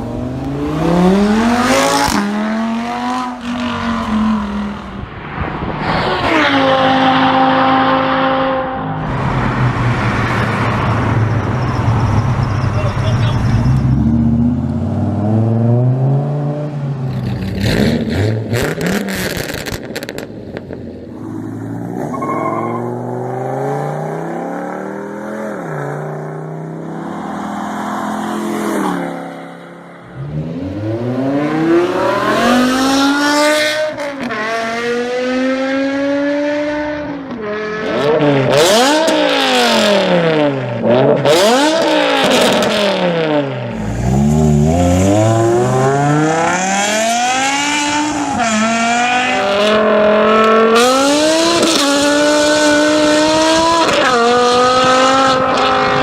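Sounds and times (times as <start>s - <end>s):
car engine accelerating hard: 30.1s - 56.0s.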